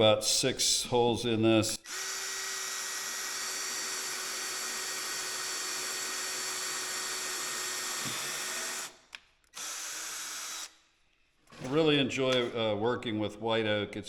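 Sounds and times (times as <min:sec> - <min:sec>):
electric drill running: 0:01.8 - 0:10.8.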